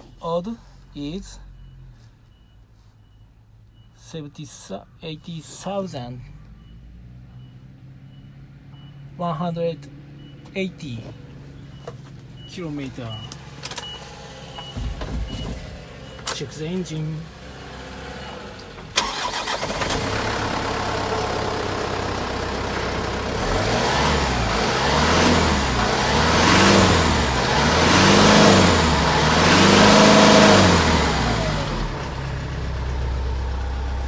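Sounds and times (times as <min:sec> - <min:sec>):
diesel engine starting and idling: 0:00.0 - 0:34.0
diesel engine revving: 0:09.8 - 0:34.0.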